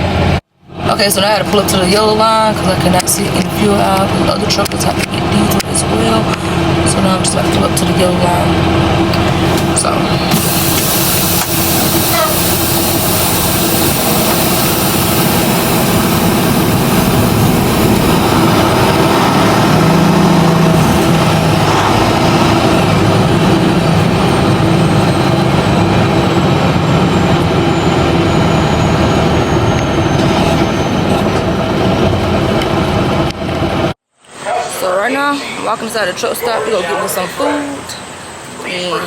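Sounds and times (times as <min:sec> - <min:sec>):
truck diesel engine running: 0:00.0 - 0:34.0.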